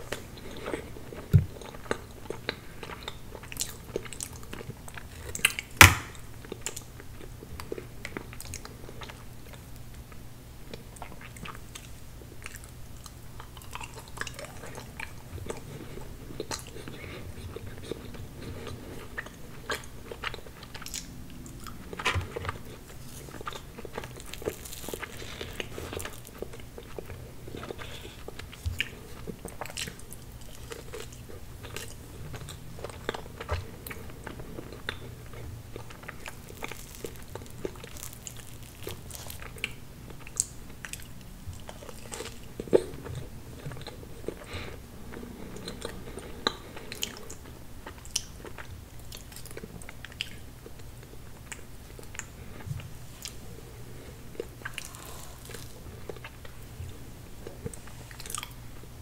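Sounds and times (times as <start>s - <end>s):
chewing and wet mouth sounds: 0.0s - 58.7s
crunchy bites: 54.4s - 56.4s.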